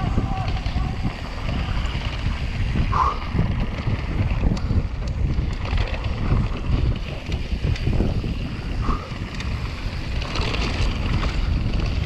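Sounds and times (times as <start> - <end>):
bike rattling clicks: 0.0 - 12.0
wind buffeting microphone: 0.0 - 12.0.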